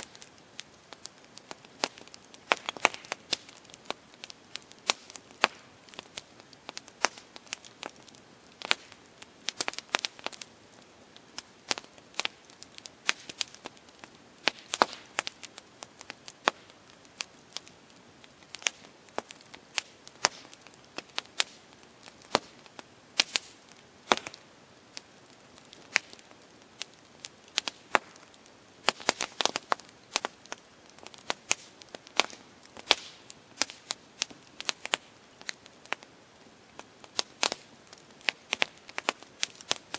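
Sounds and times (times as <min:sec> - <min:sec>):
faint steady hiss: 0:00.0 - 0:39.9
wood fire crackling and popping: 0:00.0 - 0:39.9.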